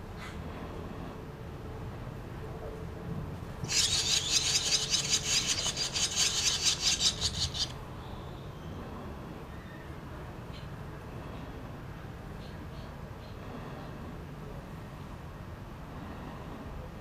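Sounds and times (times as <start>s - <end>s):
swallows chattering: 3.7s - 7.7s.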